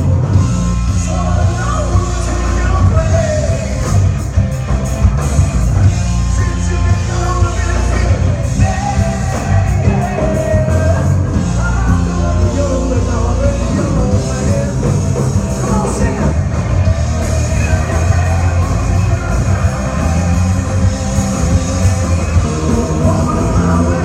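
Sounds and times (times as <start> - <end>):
rock band playing: 0.0 - 24.0
person singing: 6.2 - 24.0.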